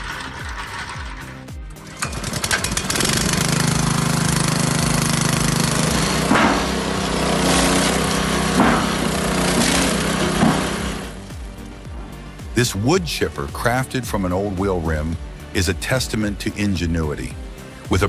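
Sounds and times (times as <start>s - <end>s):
wood-processing machine running: 0.0s - 11.9s.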